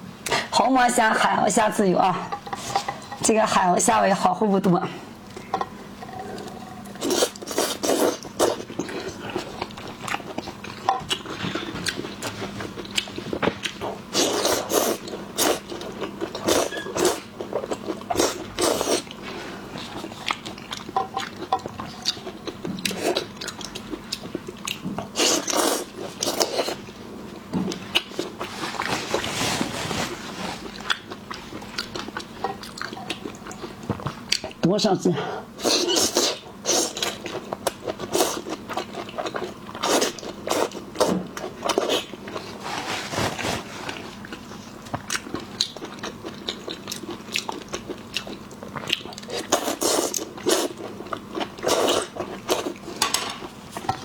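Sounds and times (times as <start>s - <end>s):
chewing: 30.6s - 34.5s, 43.9s - 53.0s.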